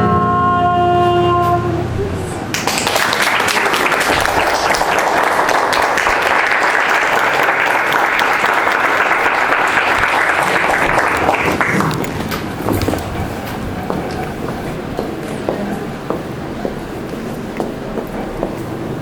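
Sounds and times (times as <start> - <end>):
audience applauding: 2.5 - 13.2.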